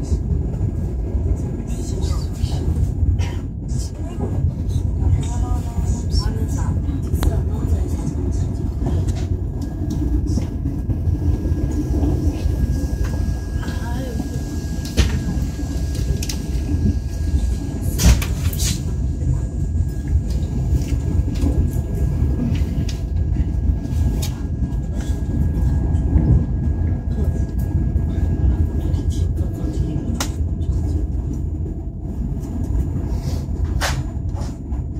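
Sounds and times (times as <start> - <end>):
train running low rumble: 0.0 - 34.9.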